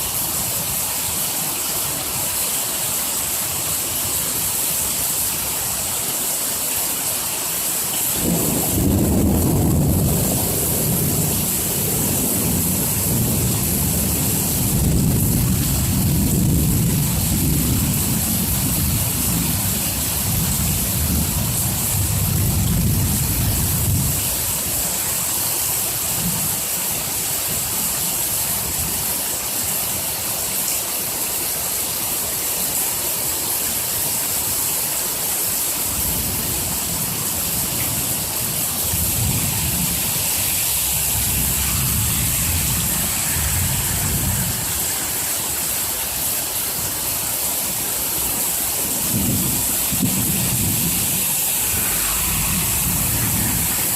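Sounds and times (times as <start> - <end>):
hard rain falling: 0.0 - 53.9
thunder rumbling: 8.2 - 24.3, 36.1 - 45.0, 49.0 - 53.9.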